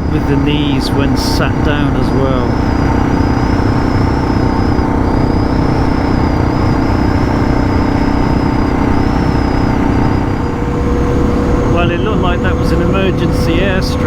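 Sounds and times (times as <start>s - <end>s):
faint high whine: 0.0s - 14.0s
motorcycle engine cruising: 0.0s - 14.0s
road and wind noise: 0.0s - 14.0s.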